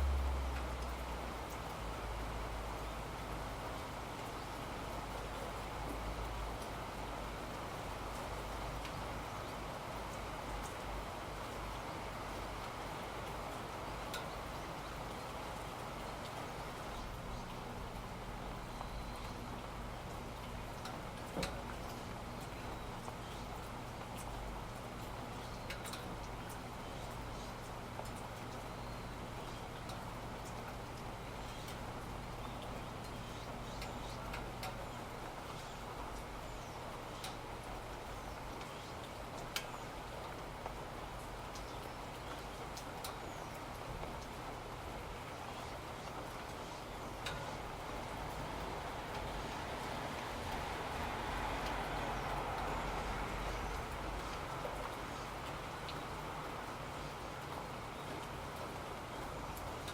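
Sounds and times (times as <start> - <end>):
low hum: 0.0 - 2.2
faint drip ticks: 0.0 - 59.9
steady rain: 0.0 - 59.9.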